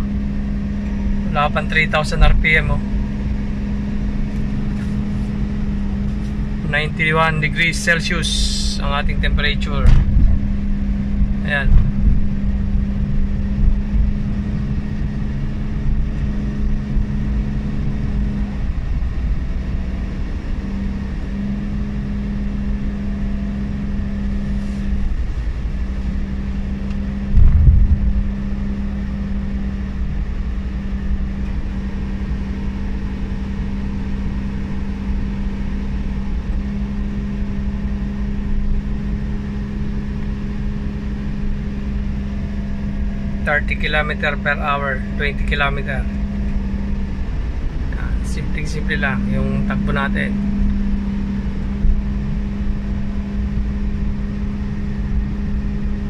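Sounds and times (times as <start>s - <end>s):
car engine droning: 0.0s - 56.0s
road noise: 0.0s - 56.0s
loud low thump: 9.7s - 12.7s, 27.3s - 28.4s.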